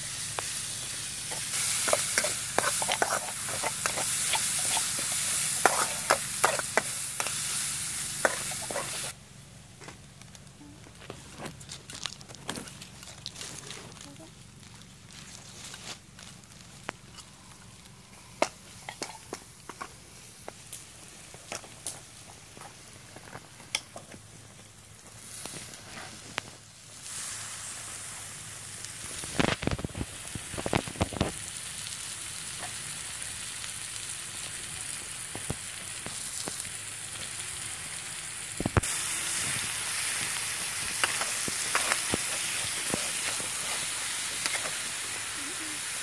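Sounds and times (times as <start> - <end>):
food sizzling in a wok: 0.0 - 9.2, 18.6 - 22.9, 25.1 - 46.0
metal spatula scraping: 1.3 - 7.4, 8.2 - 9.1.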